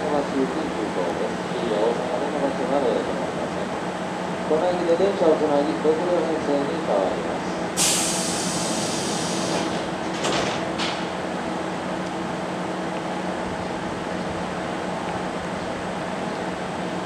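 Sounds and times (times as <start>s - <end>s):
train air brake hiss: 7.4s - 9.8s.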